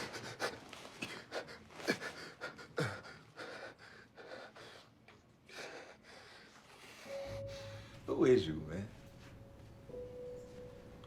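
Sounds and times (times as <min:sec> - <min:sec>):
faint breathing: 0:00.0 - 0:08.1.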